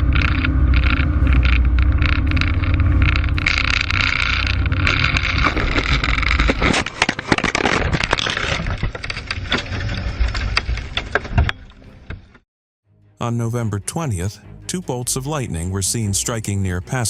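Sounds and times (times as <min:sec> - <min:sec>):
airplane engine and wind drone: 0:00.0 - 0:07.0
sharp clicks knocks and crackle: 0:00.0 - 0:12.4.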